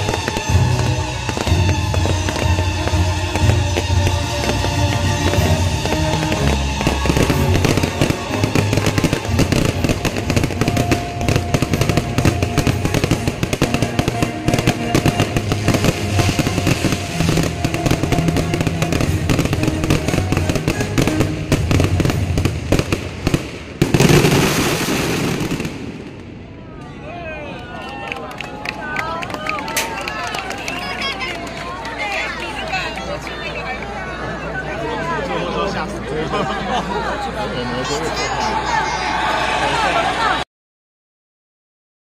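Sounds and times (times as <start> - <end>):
music: 0.0 - 23.0
fireworks banging and crackling: 0.0 - 26.8.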